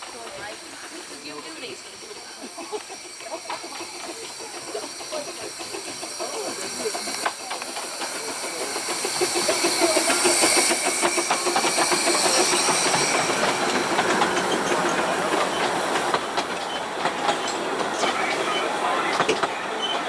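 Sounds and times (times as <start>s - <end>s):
steam hissing: 0.0s - 19.8s
wheels clattering on rails: 0.0s - 20.0s.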